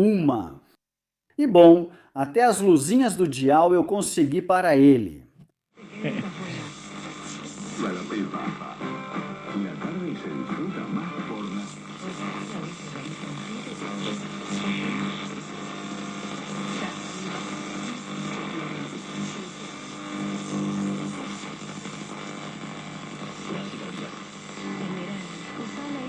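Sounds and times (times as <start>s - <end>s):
radio interference hissing: 5.8s - 26.0s.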